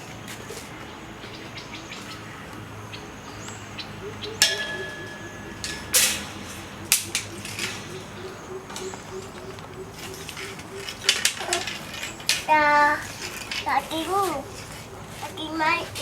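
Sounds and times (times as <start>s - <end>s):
sharp ringing clink: 4.4s - 6.9s.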